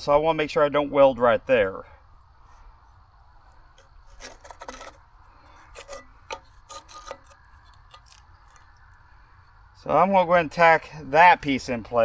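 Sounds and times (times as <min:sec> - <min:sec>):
steel pieces scraping: 0:03.8 - 0:08.6.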